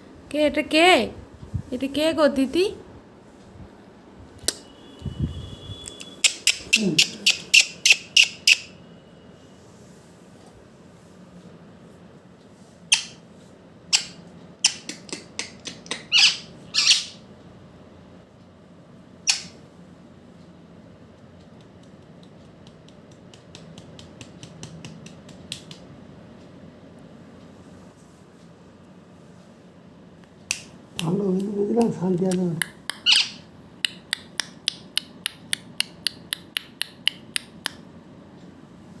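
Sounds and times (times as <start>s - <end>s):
parrot squawking: 6.2s - 8.7s, 15.9s - 17.2s, 33.0s - 33.4s
rapid sharp clicks: 21.1s - 25.9s.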